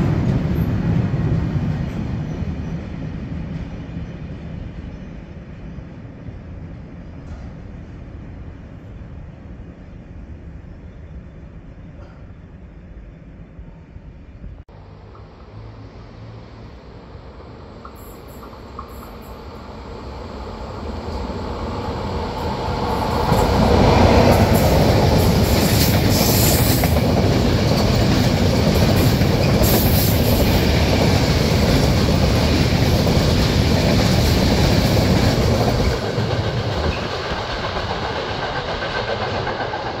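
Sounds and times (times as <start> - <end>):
freight train rumble and rattle: 0.0 - 16.0, 16.6 - 40.0.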